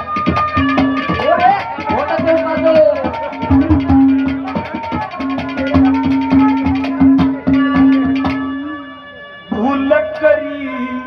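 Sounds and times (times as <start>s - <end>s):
quick drum strokes: 0.0s - 8.4s
long held note: 0.0s - 11.0s.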